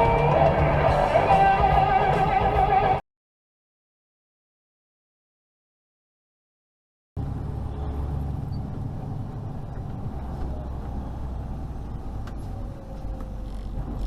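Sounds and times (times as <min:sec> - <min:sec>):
car road noise rumble: 0:07.2 - 0:14.0.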